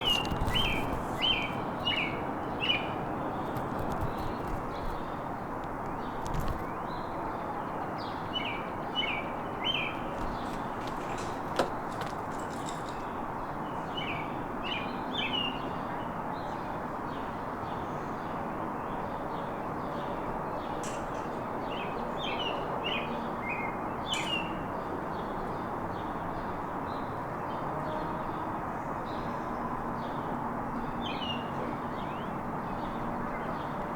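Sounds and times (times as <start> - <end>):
birds chirping: 8.0 - 14.1.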